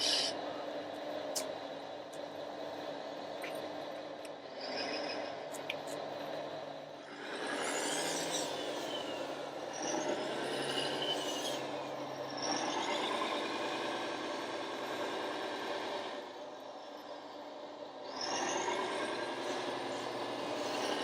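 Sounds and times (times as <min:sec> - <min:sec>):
small electric motors whining: 0:00.0 - 0:00.3
steady mechanical hum: 0:00.0 - 0:21.0.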